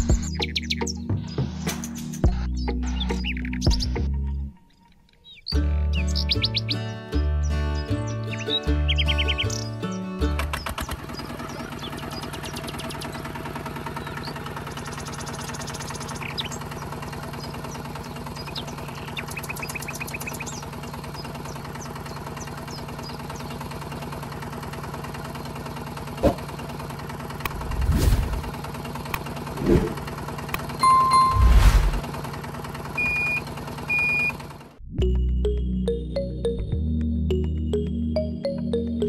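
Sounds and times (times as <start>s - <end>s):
birds chirping faintly: 4.7s - 24.1s
small motor ticking: 10.6s - 27.8s.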